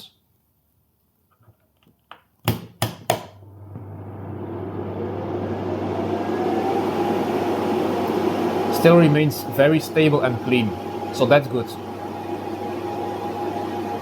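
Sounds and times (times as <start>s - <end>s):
cooling fans rushing: 3.4s - 14.0s
faint whine: 3.4s - 14.0s
low hum: 3.4s - 14.0s.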